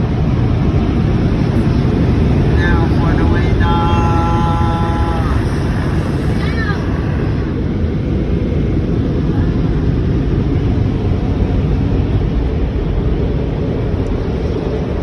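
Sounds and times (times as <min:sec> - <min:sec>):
air dryer blowers rushing: 0:01.0 - 0:08.4.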